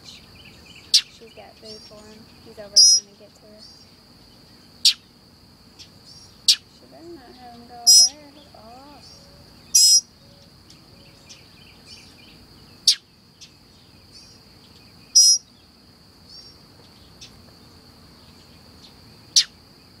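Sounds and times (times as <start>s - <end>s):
high bird chirps: 0.0s - 3.9s, 4.6s - 5.1s, 7.8s - 15.5s
high insect drone: 0.0s - 20.0s.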